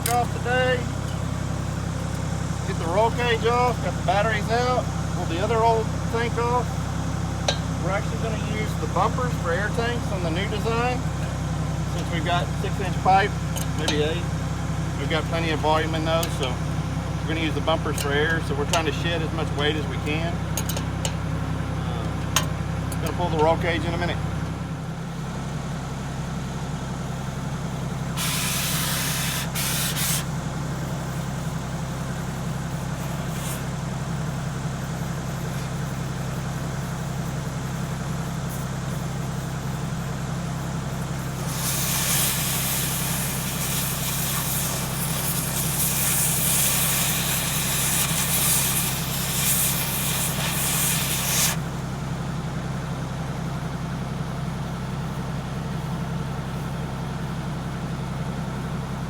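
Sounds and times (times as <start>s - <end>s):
low engine hum: 0.0s - 59.0s
compressed air hissing: 27.6s - 51.8s.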